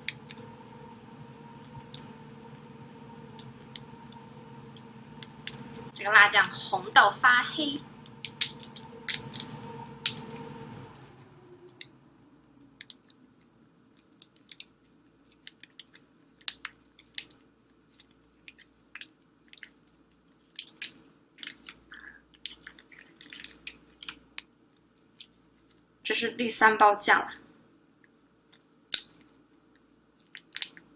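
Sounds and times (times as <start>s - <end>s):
soft rushing noise: 0.0s - 13.7s.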